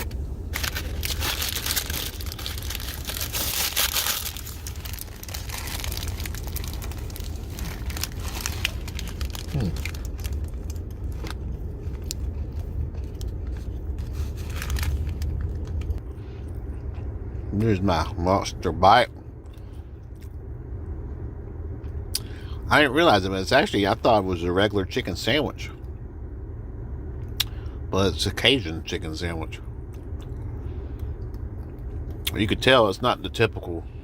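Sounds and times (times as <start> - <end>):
paper wrapper crinkling: 0.0 - 16.0
steady low hum: 0.0 - 34.0.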